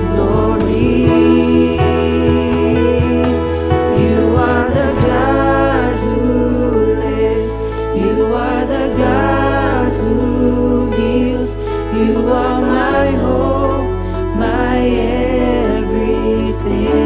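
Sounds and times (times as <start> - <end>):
band playing slow praise song: 0.0 - 17.0
person singing: 0.0 - 17.0
sustained bass notes: 0.0 - 17.0.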